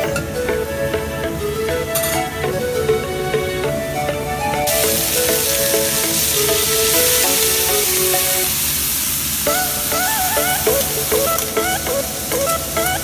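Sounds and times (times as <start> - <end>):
frying in hot oil: 4.7 - 11.6.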